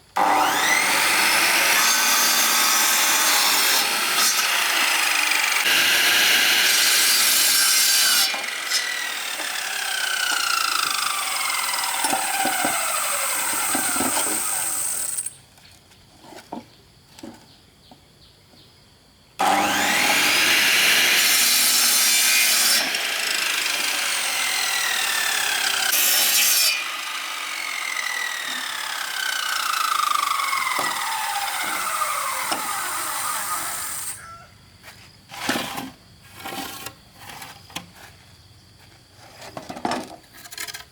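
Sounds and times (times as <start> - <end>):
power saw cutting bamboo: 0.2 - 15.4, 19.4 - 34.3.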